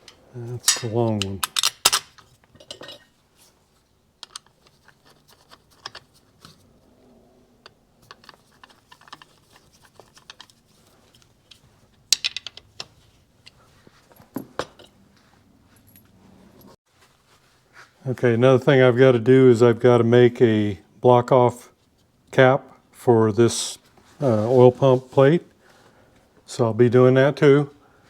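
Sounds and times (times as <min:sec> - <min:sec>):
screwdriver and screws clicking: 0:04.2 - 0:06.2.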